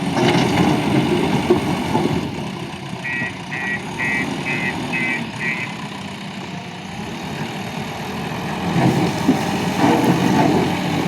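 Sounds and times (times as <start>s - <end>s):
diesel engine running: 0.0s - 11.0s
reversing alarm beeping: 3.0s - 5.8s.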